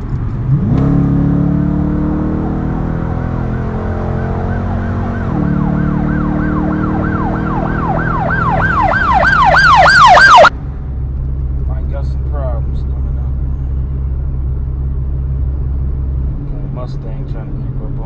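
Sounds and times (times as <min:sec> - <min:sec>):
car engine running: 0:02.7 - 0:18.0
siren yelping: 0:03.4 - 0:10.5.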